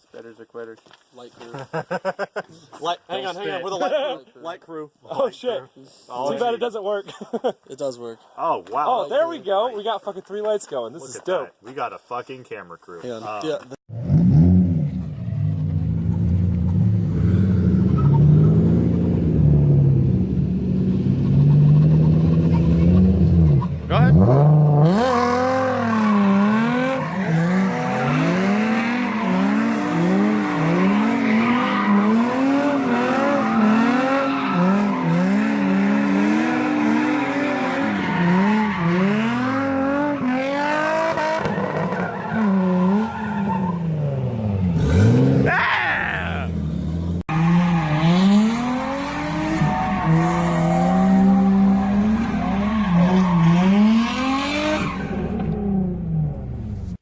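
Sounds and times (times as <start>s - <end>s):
car engine revving: 13.9s - 45.5s, 46.4s - 56.8s
tyres squealing: 25.7s - 40.3s.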